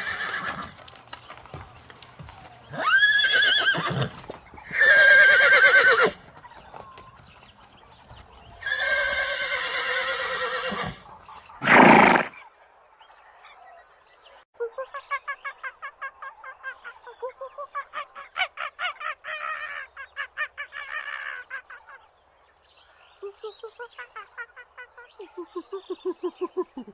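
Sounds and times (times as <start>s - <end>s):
horse whinnying: 0.0s - 0.8s, 2.7s - 6.2s, 8.6s - 11.0s, 11.6s - 12.4s
horse snorting: 11.6s - 12.4s
farm fowl calling: 15.0s - 22.0s.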